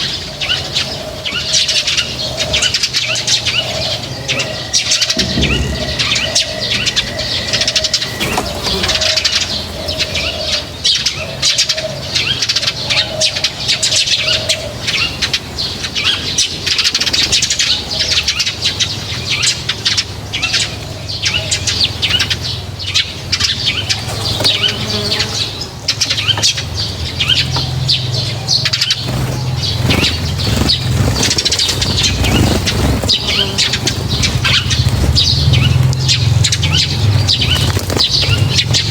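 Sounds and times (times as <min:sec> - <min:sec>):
wings fluttering: 0:00.0 - 0:12.0, 0:23.2 - 0:38.9
dove cooing: 0:00.0 - 0:38.9
small birds chirping: 0:00.0 - 0:38.9.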